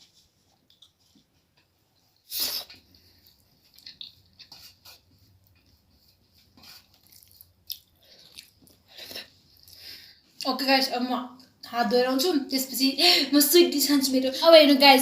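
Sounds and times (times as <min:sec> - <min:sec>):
soft chewing: 0:00.3 - 0:10.5.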